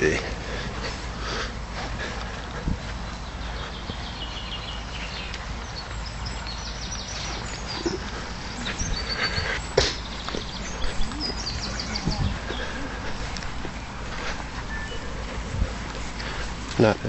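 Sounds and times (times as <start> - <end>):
wind rumble: 0.0 - 16.8
faint high bird calls: 3.0 - 13.0, 14.6 - 15.2.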